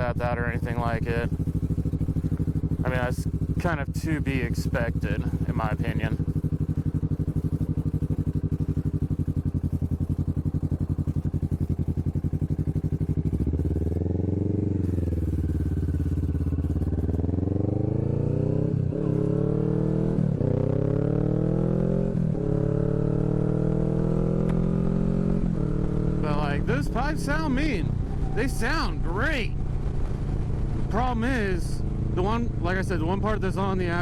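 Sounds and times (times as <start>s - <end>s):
person speaking: 0.0s - 1.3s, 2.8s - 6.2s, 26.2s - 29.6s
gear changes: 0.0s - 34.0s
motorcycle engine revving: 0.0s - 34.0s.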